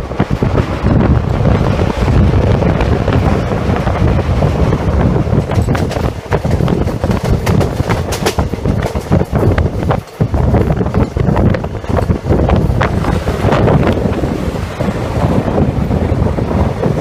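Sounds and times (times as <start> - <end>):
train wheels rumbling on rail: 0.0 - 17.0
wind buffeting microphone: 0.0 - 17.0.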